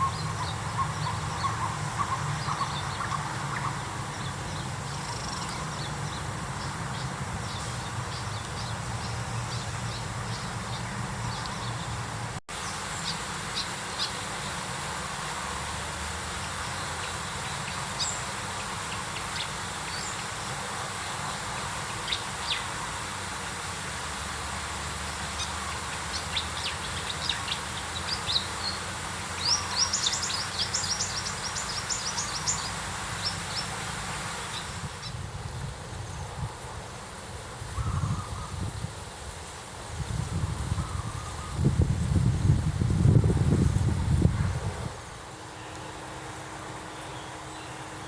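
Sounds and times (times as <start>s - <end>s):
birds chirping: 0.0s - 14.7s, 25.2s - 35.3s
background hiss: 0.0s - 48.0s.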